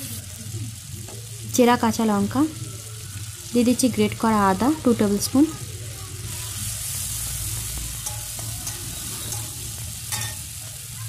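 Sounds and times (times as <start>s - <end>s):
vegetables sizzling in oil: 0.0s - 11.0s
metal spatula scraping pan: 7.0s - 10.6s.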